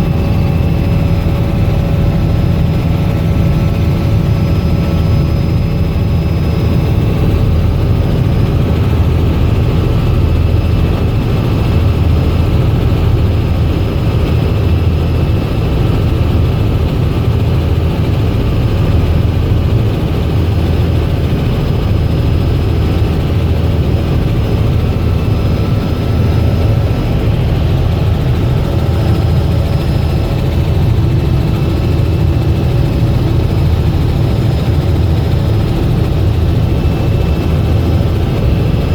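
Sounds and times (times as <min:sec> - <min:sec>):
helicopter rotor and engine rumble: 0:00.0 - 0:38.9.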